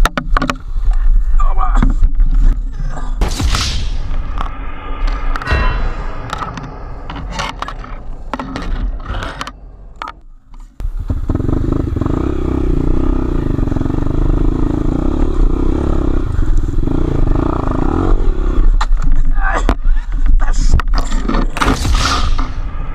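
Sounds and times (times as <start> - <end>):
knocks scraping and clatter: 4.3 - 10.8, 18.8 - 22.6
motorcycle engine running: 10.8 - 18.8.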